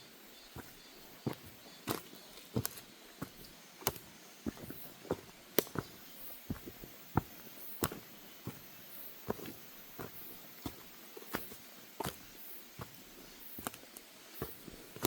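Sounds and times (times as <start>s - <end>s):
footsteps on wooden deck: 0.5s - 15.0s.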